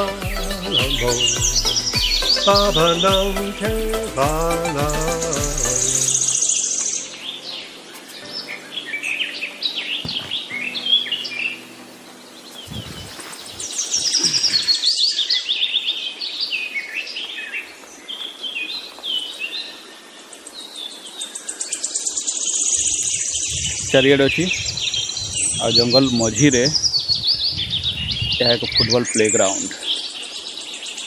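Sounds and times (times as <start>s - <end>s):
wild birds chirping and singing: 0.0s - 31.0s
dull thumps: 10.0s - 10.5s.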